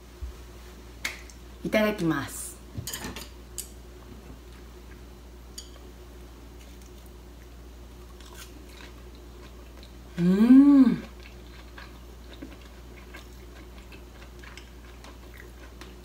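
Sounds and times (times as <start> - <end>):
woman chewing crunchy food: 8.0 - 16.0.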